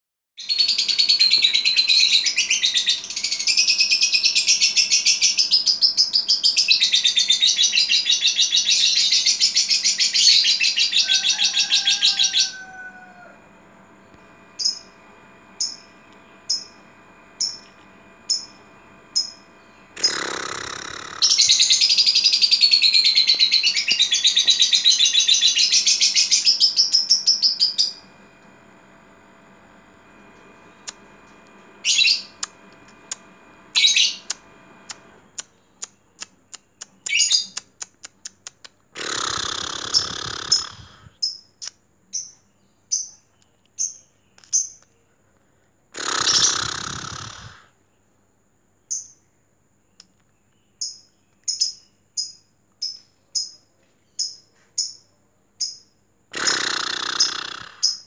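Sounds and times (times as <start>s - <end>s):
songbird singing: 14.0s - 15.0s, 15.6s - 28.1s, 31.8s - 45.2s, 48.8s - 58.0s.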